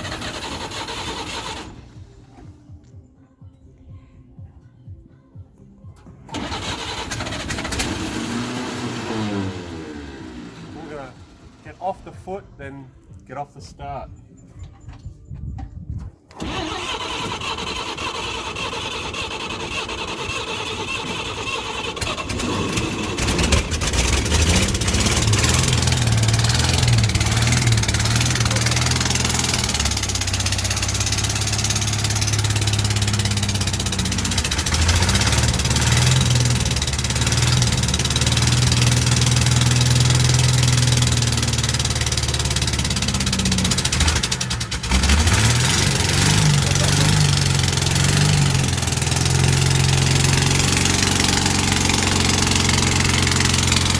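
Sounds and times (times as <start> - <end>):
starter motor cranking: 0.0 - 1.9, 6.3 - 9.8, 16.3 - 53.9
truck engine running: 0.0 - 2.6, 6.3 - 12.3, 16.4 - 53.9.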